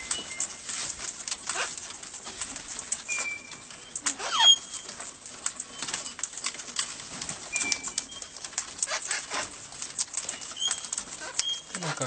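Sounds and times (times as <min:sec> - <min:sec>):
parrots chattering: 0:10.2 - 0:12.0.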